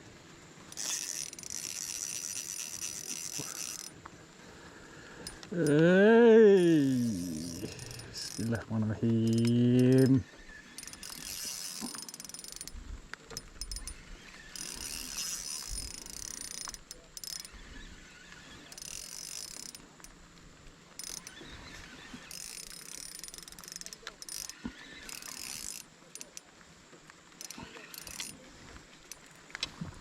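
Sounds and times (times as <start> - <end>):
fishing reel ticking: 0.7 - 4.0, 5.2 - 20.2, 21.0 - 26.5, 27.4 - 28.4, 29.0 - 29.4.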